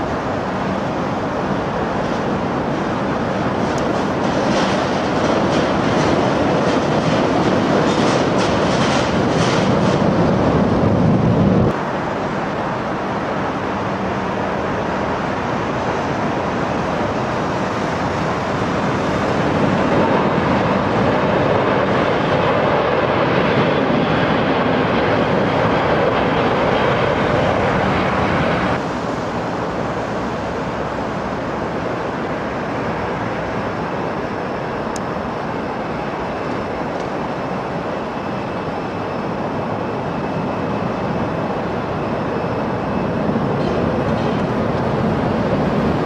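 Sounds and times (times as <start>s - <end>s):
jet engines roaring: 0.0s - 46.0s.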